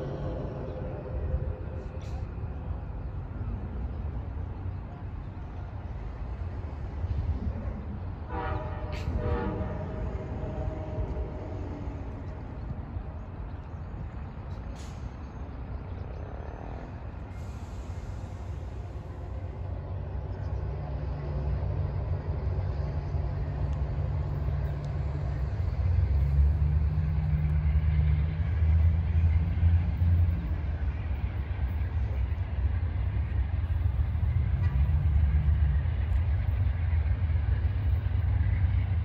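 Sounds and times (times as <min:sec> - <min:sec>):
train rumbling on rails: 0:00.0 - 0:39.0
distant train horn blast: 0:08.2 - 0:12.5.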